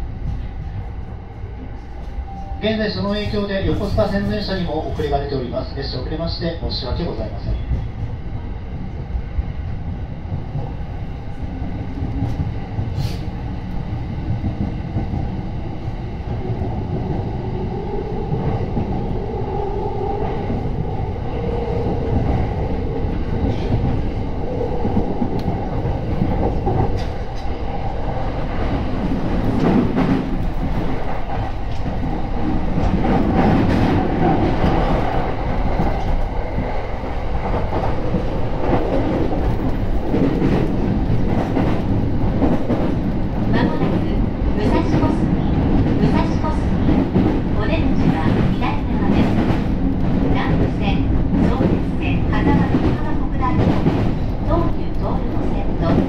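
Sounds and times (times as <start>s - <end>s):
train wheels rumbling on rail: 0.0s - 56.0s
rail joint clicks: 10.2s - 56.0s.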